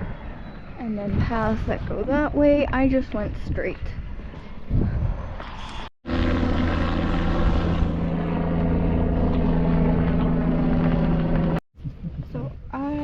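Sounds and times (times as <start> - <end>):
engine drone: 6.0 - 11.6.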